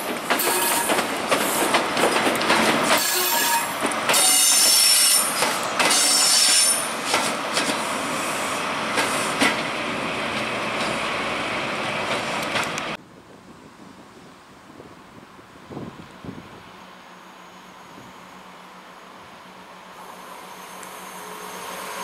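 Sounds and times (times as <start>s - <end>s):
train rumble: 0.0s - 22.0s
clicks over rail joints: 0.1s - 3.1s
train wheels squealing: 3.0s - 7.0s, 20.0s - 22.0s.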